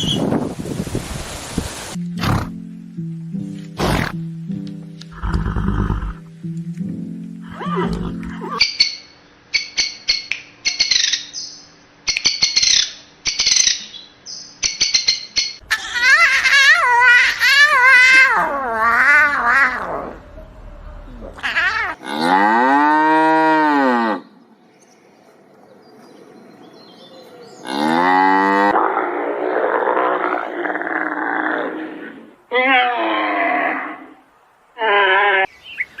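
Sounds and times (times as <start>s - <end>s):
long wavering animal call: 7.4s - 8.6s, 15.7s - 22.0s, 34.8s - 35.6s
cow mooing: 7.5s - 8.6s, 21.5s - 24.2s, 27.6s - 31.8s
squawking chirps: 7.5s - 20.6s.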